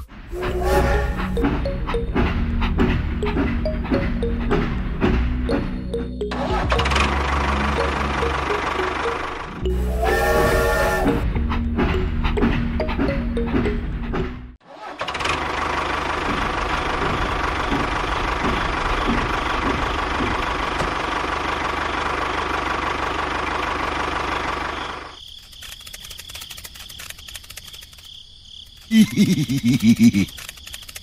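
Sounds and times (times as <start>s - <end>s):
clicking: 30.2s - 31.0s.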